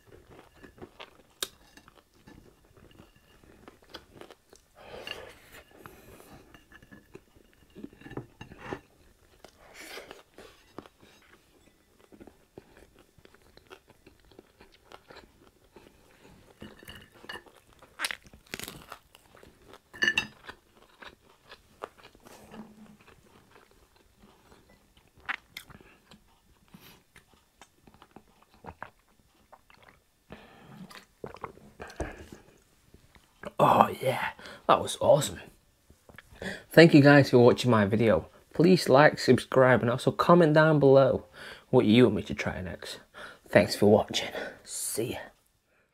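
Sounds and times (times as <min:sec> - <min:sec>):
person chewing crunchy food: 0:00.0 - 0:33.6.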